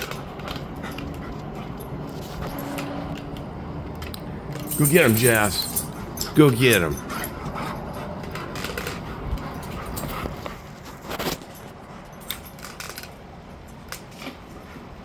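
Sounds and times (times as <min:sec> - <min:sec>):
dog collar tags jingling: 0:04.5 - 0:10.3, 0:11.5 - 0:13.1.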